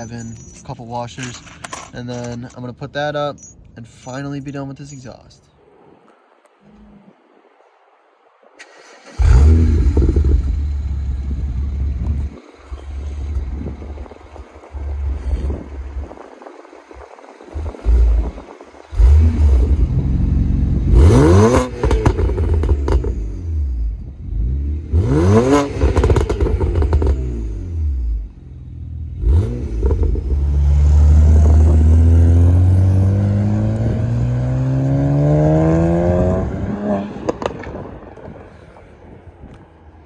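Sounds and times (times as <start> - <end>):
car engine revving: 8.8 - 16.1, 17.5 - 28.3, 29.0 - 37.7.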